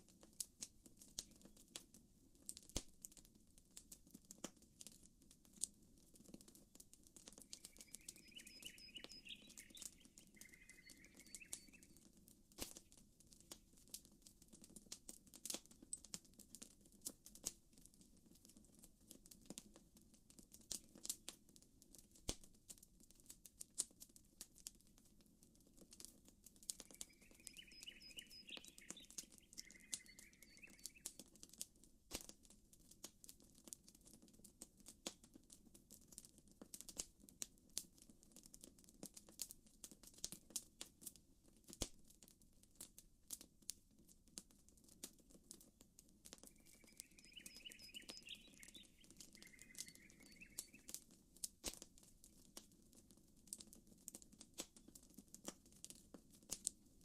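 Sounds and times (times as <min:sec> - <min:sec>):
campfire crackling and popping: 0:00.0 - 0:57.0
gentle water ripples: 0:07.4 - 0:12.0, 0:26.8 - 0:31.1, 0:46.4 - 0:51.0
bird chirping: 0:07.5 - 0:12.0, 0:26.8 - 0:31.2, 0:46.4 - 0:51.0.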